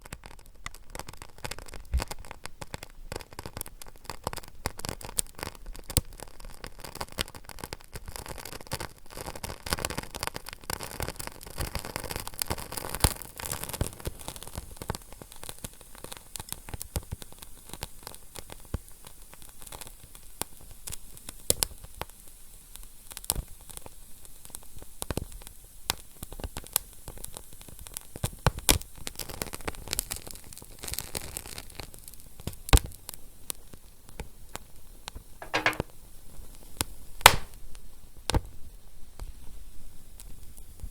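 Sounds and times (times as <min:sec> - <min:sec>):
fire crackling: 0:37.2 - 0:37.6.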